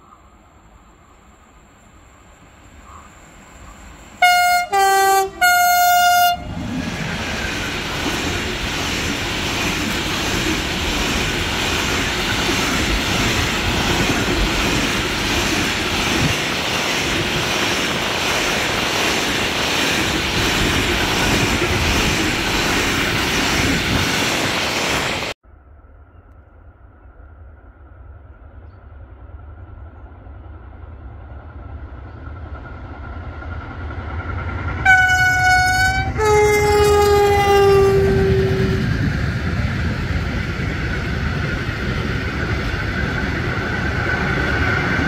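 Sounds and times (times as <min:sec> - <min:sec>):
freight train wheels rumbling: 0:00.0 - 0:25.4, 0:26.8 - 0:45.0
train horn blasts: 0:04.2 - 0:06.6, 0:34.8 - 0:38.9.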